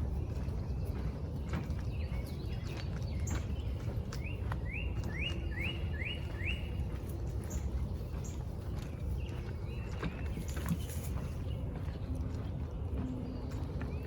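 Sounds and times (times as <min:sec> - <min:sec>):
songbird whistling: 0:04.2 - 0:06.7
low rumble: 0:06.7 - 0:14.0.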